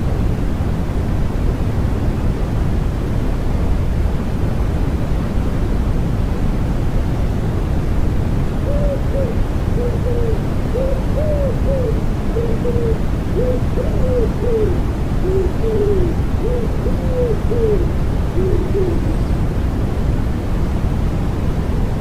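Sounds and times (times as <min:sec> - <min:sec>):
white noise: 0:00.0 - 0:22.0
pigeon cooing: 0:08.6 - 0:19.3.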